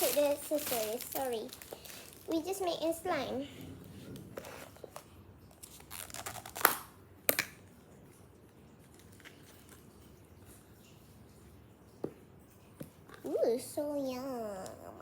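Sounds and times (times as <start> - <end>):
faint handling noise: 0.0 - 6.2
crinkly packaging rustle: 0.0 - 6.9, 8.8 - 10.6.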